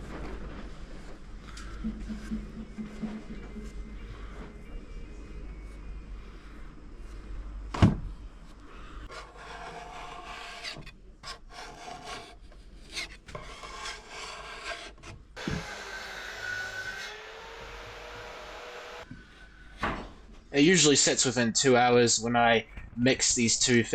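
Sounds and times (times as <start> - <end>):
scraper blade scraping wood: 9.1 - 15.8.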